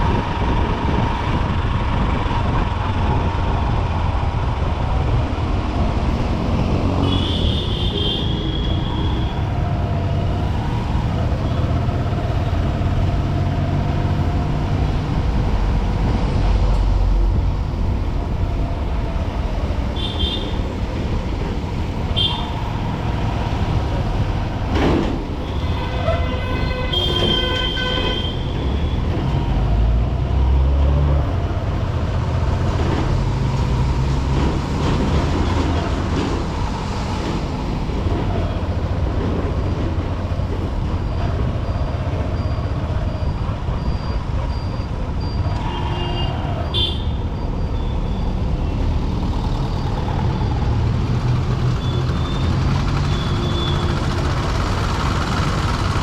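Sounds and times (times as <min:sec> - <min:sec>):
wind rumble: 0:00.0 - 0:07.0
vehicle horns honking: 0:07.0 - 0:09.3, 0:20.0 - 0:20.6, 0:25.4 - 0:28.7, 0:45.6 - 0:47.2.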